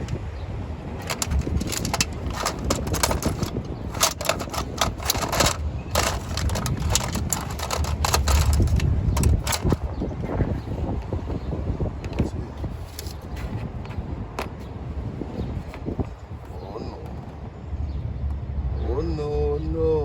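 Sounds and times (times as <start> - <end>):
hand tools and metal parts clattering: 0.0 - 0.2, 1.0 - 9.9
steady low rumble: 0.0 - 20.0.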